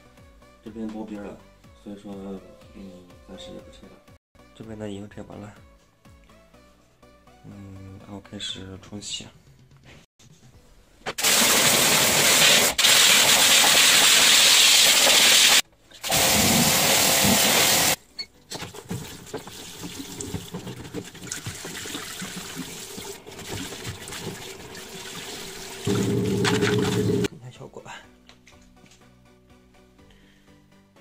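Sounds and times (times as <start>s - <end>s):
water jet hissing spray: 11.2s - 18.0s
water spattering: 11.2s - 18.0s, 18.6s - 27.3s.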